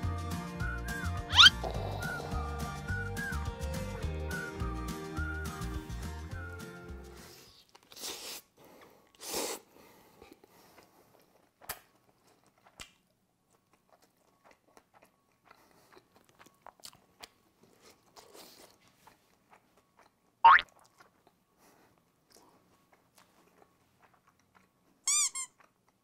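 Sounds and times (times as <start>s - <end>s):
chewing clicks: 10.3s - 21.4s, 22.3s - 24.9s
crunchy bites of pizza: 10.3s - 21.4s.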